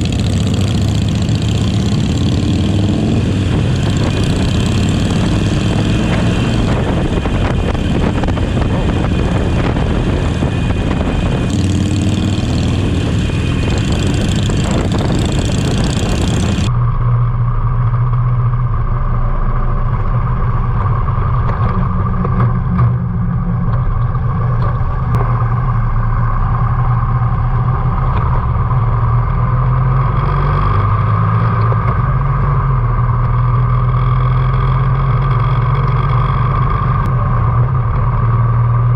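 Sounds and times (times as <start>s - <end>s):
motorcycle engine running: 0.0s - 38.9s
wind rush on microphone: 1.2s - 16.8s.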